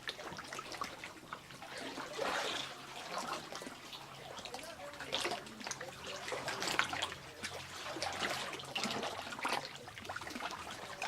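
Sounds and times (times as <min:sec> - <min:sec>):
paddles splashing in water: 0:00.0 - 0:11.0.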